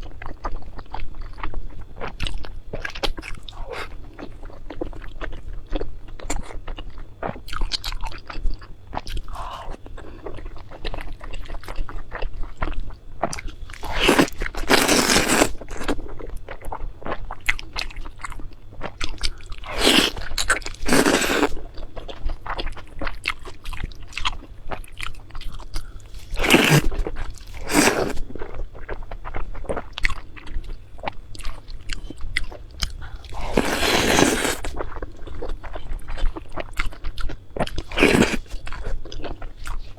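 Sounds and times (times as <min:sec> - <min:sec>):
chewing and crunching: 0:00.0 - 0:39.9.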